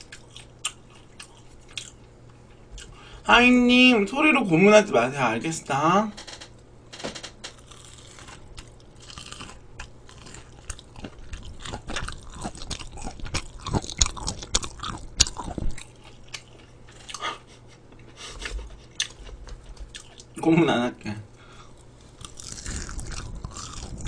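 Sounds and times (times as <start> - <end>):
crunching fried food: 0.0 - 2.1, 7.5 - 17.2, 21.8 - 24.0.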